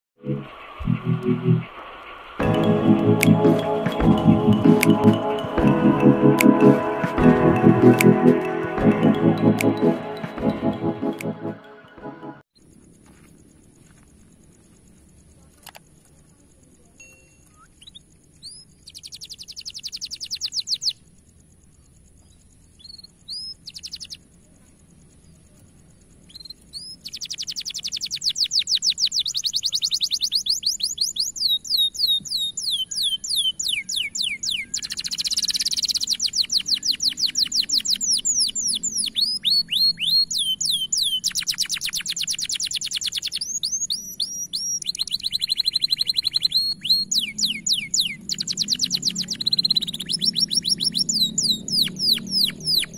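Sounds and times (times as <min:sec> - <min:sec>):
canary singing trills: 0:17.0 - 0:21.2, 0:21.8 - 0:24.4, 0:25.0 - 0:52.9.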